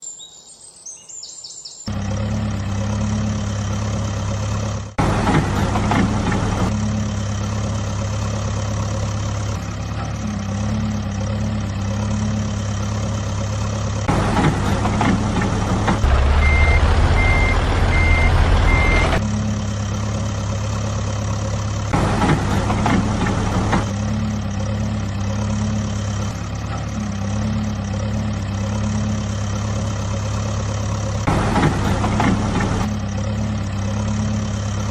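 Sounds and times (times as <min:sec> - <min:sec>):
heavy engine rumbling: 0:01.9 - 0:34.9
tractor engines running: 0:01.9 - 0:34.9
reversing alarm beeping: 0:16.0 - 0:19.2.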